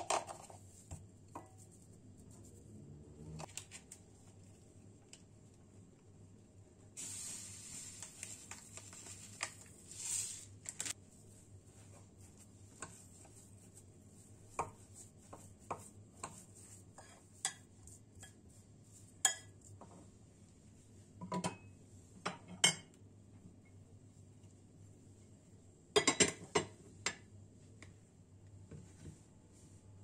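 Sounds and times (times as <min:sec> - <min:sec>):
dishes and cutlery clinking: 0:26.0 - 0:27.2.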